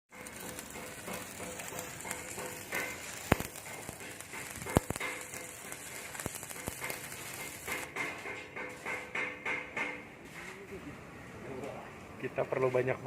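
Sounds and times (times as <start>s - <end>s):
sharp clicks: 0.1s - 7.9s
welding arc crackling and sizzling: 0.1s - 8.2s.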